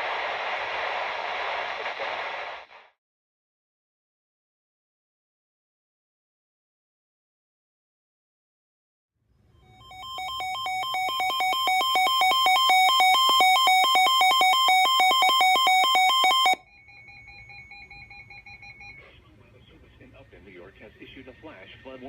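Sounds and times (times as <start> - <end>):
two-pitch emergency alert tone: 9.7 - 19.1.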